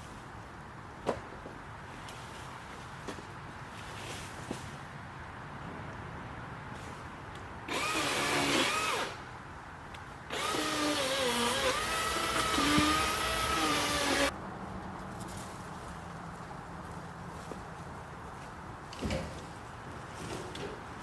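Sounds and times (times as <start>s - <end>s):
electric chainsaw whining: 7.7s - 9.2s, 10.3s - 14.3s.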